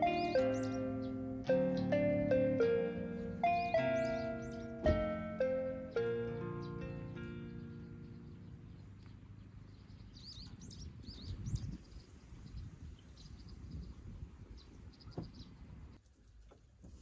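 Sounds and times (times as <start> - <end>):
birds chirping: 0.0 - 16.0
low outdoor rumble: 0.7 - 11.4.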